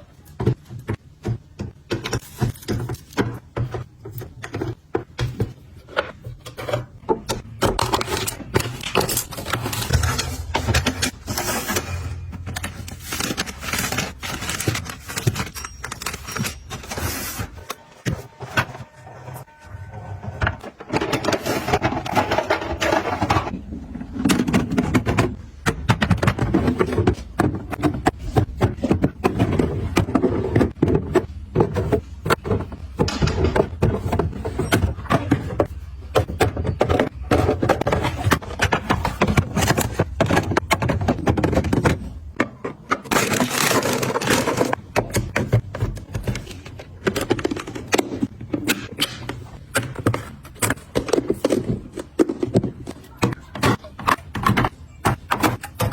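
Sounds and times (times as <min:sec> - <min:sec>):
packaging rustling: 0:07.7 - 0:17.6
containers clicking and knocking: 0:20.3 - 0:55.9.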